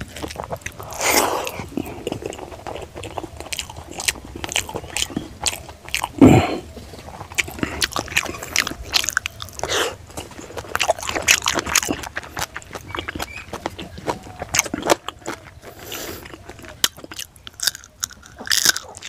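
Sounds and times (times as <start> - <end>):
wet chewing and lip smacks: 0.0 - 19.0
loud mouth noise: 6.1 - 6.7.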